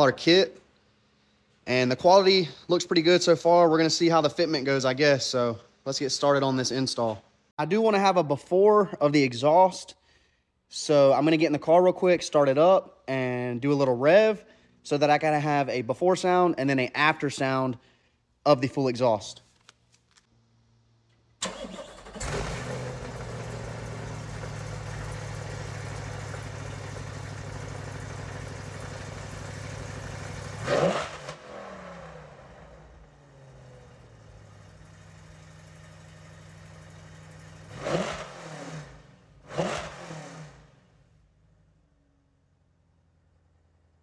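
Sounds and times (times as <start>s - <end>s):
car engine starting: 21.1s - 41.8s
car engine idling and revving: 22.0s - 44.0s.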